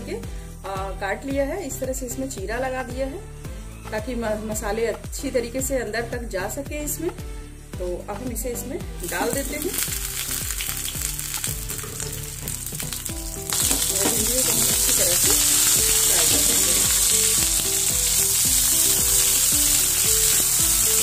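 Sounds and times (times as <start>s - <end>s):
light background music: 0.0s - 21.0s
okra sizzling in hot oil: 8.9s - 21.0s.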